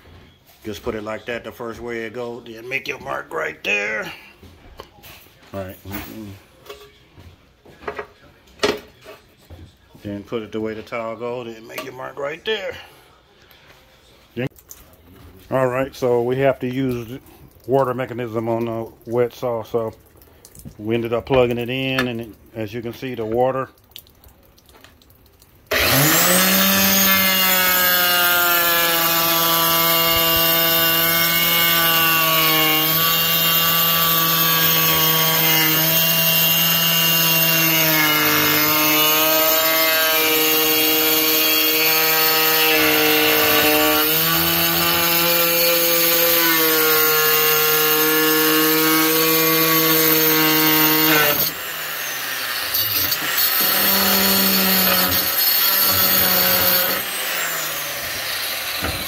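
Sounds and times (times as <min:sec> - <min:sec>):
wet tile saw whining: 0:25.7 - 0:59.0.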